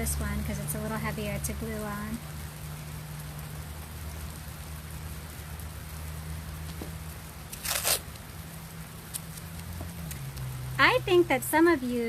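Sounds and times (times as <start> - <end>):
adhesive tape tearing off roll: 7.5 - 8.2, 9.1 - 10.2.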